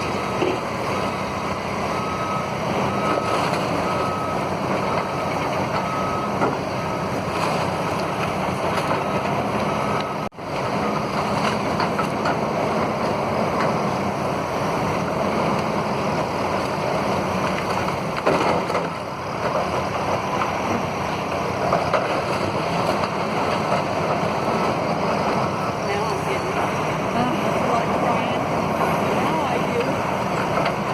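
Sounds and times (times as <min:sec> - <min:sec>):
reversing alarm beeping: 0:00.0 - 0:07.7, 0:09.0 - 0:10.3, 0:18.9 - 0:30.9
heavy demolition machinery running: 0:00.0 - 0:30.9.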